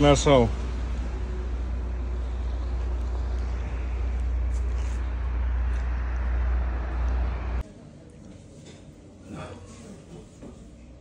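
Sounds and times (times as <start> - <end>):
truck diesel engine drone: 0.0 - 7.6.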